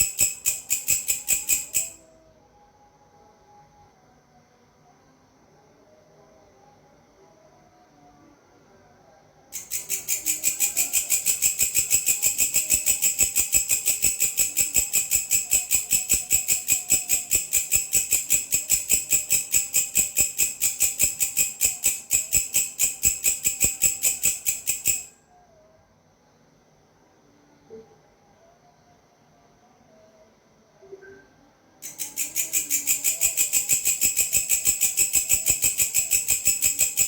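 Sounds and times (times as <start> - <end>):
grasshopper rasping call: 0.0 - 2.0, 9.6 - 25.1, 31.8 - 37.0.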